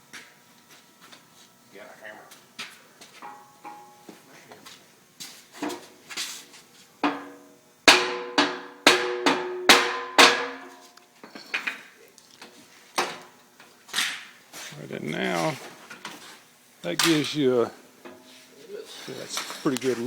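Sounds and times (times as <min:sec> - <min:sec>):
metal striking metal: 0:07.0 - 0:10.8.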